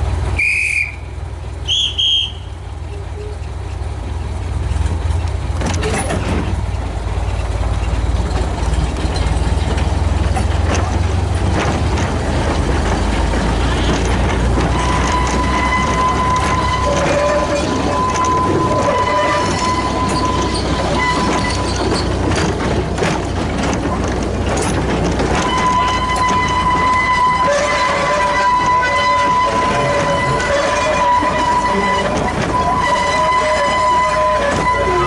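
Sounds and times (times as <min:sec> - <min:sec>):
steam locomotive whistle toots: 0:00.4 - 0:03.4, 0:14.6 - 0:22.2, 0:25.4 - 0:35.0.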